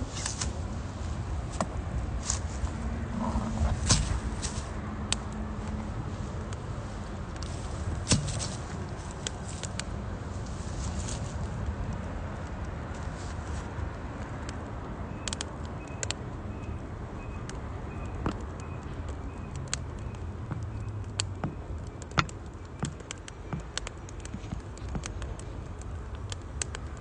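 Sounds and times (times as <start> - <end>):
low steady rumble: 0.0 - 13.0
wood fire crackling: 0.0 - 27.0.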